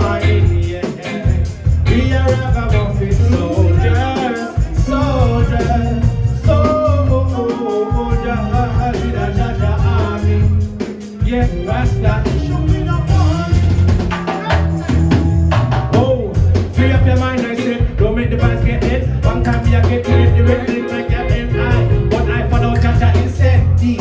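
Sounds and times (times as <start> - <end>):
heavy pulsing bass line: 0.0 - 24.0
reggae band playing: 0.0 - 24.0
wavering melodic lead: 19.7 - 23.0.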